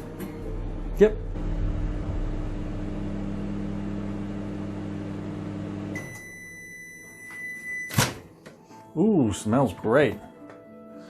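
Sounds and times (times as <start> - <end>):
microwave oven humming: 1.3 - 7.2
high beep: 6.0 - 8.0.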